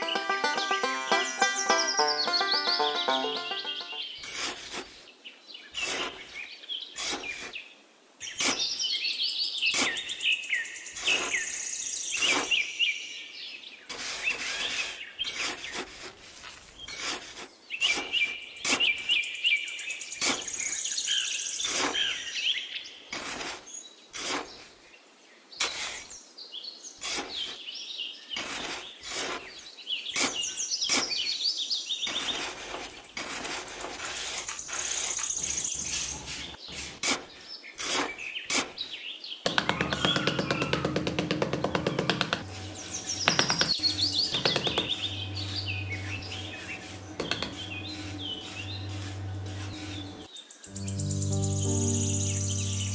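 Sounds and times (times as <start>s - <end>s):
birds chirping and trilling: 0.0s - 4.4s, 8.2s - 15.8s, 17.7s - 23.0s, 34.6s - 36.8s, 37.4s - 52.9s
trowel scraping damp sand: 4.2s - 5.1s, 5.8s - 7.6s, 8.3s - 8.8s, 9.7s - 10.2s, 11.0s - 11.5s, 12.1s - 12.7s, 13.9s - 19.2s, 20.2s - 20.6s, 21.6s - 22.2s, 23.1s - 24.8s, 25.6s - 26.2s, 27.0s - 27.6s, 28.3s - 31.4s, 32.0s - 38.9s, 42.0s - 50.3s.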